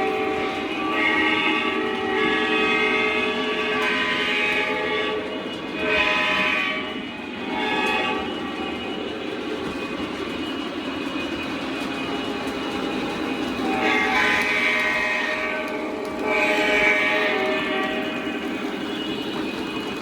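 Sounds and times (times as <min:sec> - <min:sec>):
model train horn blasts: 0:00.0 - 0:09.3, 0:13.6 - 0:19.9
model train rolling on track: 0:00.0 - 0:20.0.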